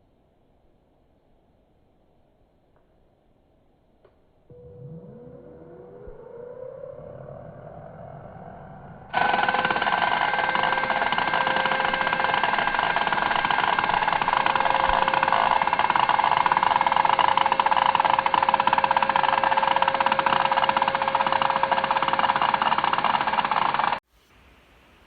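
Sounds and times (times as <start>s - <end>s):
angle grinder grinding paint: 9.1s - 24.0s.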